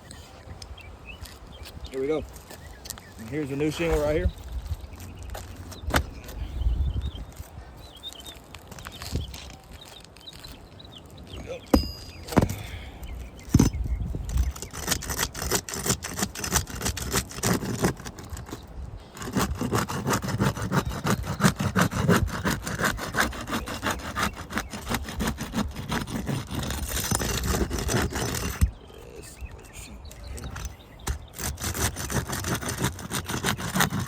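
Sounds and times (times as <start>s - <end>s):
scraping on roof shingles: 12.3s - 28.8s, 30.5s - 34.0s.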